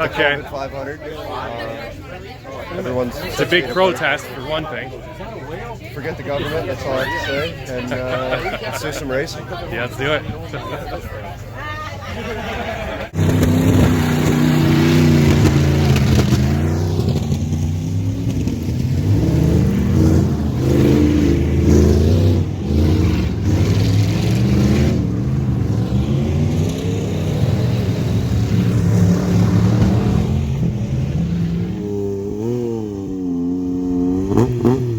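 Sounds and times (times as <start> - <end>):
engine revving: 13.1 - 34.9.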